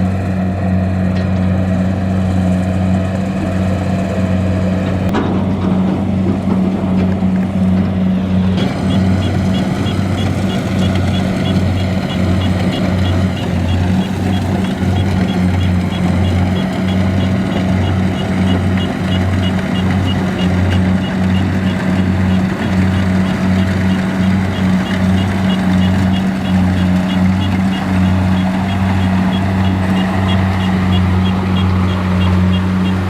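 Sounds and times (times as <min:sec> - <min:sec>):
diesel engine running: 0:00.0 - 0:33.0
high-pitched warning beeper: 0:08.6 - 0:33.0.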